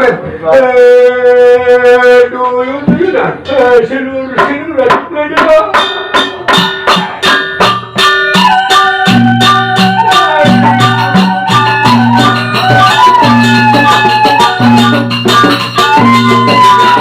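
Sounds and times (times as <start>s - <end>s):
percussion strokes: 2.9s - 17.0s
ringing metal tones: 5.4s - 17.0s
held melody line: 5.7s - 17.0s.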